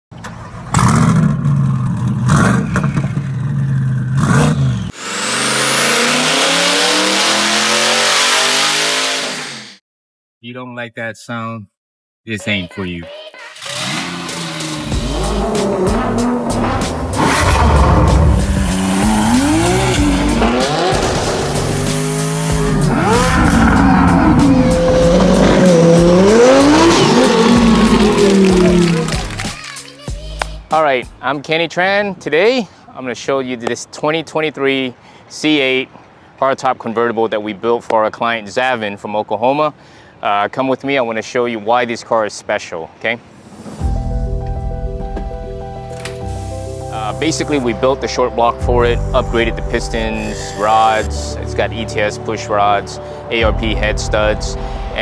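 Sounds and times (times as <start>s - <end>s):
car engine accelerating: 0.2s - 9.6s, 13.6s - 29.6s
loud engine bursts: 3.8s - 9.8s, 13.5s - 29.6s.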